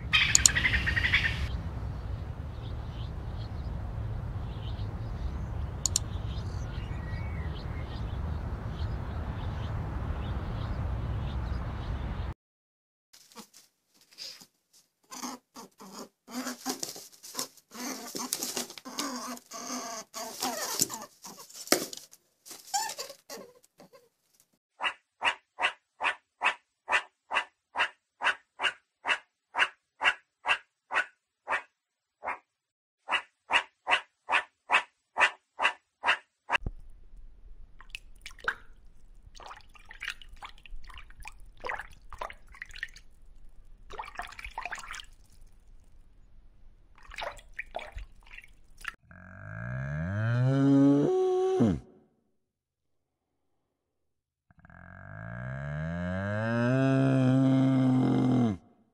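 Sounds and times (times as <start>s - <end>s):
faint low hum: 0.0s - 12.3s, 36.6s - 48.9s
water dripping and bubbling: 5.7s - 6.2s, 36.6s - 46.2s, 46.9s - 49.0s.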